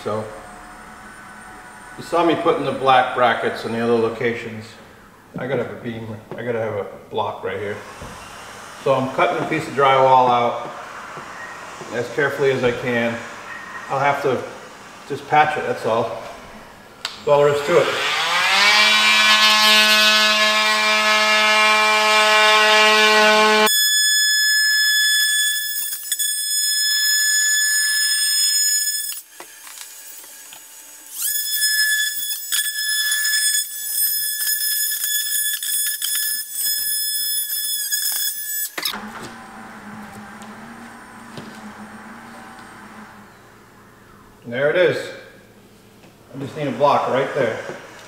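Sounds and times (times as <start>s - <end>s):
power tool cutting drywall: 7.7s - 16.3s, 17.3s - 43.4s.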